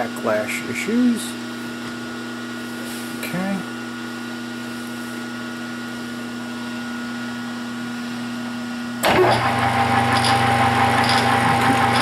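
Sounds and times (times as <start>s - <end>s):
machine whine: 9.0s - 12.0s
metal lathe humming: 9.0s - 12.0s.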